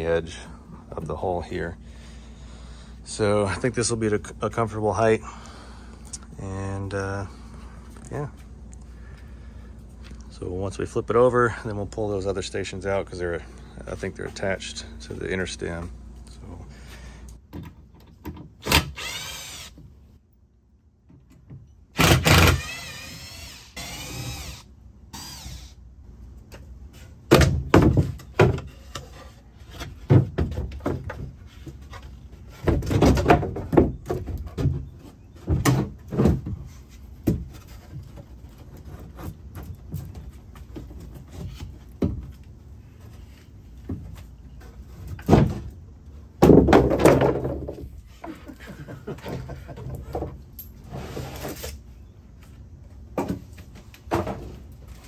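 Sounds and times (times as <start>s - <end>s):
drill-driver whining: 18.7s - 19.8s, 22.0s - 25.8s
wooden knocks and thunks: 27.3s - 29.1s, 29.7s - 42.4s, 43.8s - 45.8s, 46.4s - 48.4s, 53.1s - 54.7s.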